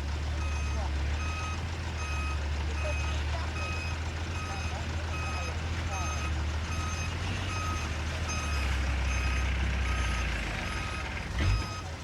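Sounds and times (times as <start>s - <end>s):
diesel engine running: 0.0s - 12.0s
reversing alarm beeping: 0.4s - 11.9s.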